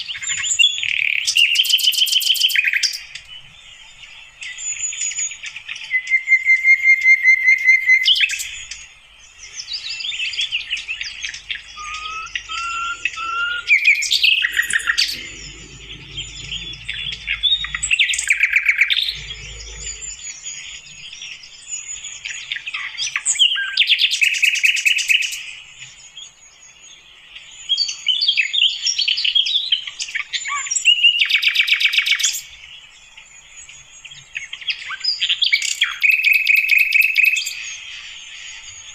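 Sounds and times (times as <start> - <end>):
flycatcher singing: 7.8 - 24.7.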